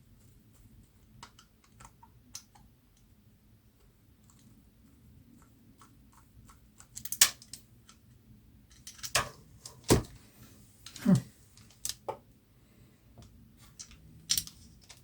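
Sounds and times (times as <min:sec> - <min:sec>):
metal parts and tools clinking: 0:13.7 - 0:15.0.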